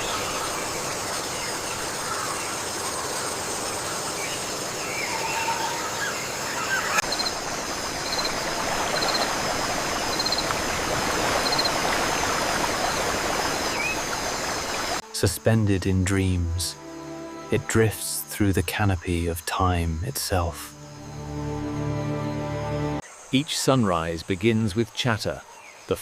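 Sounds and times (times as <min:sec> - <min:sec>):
birds chirping: 0:00.0 - 0:15.3
insects whining: 0:00.0 - 0:26.0.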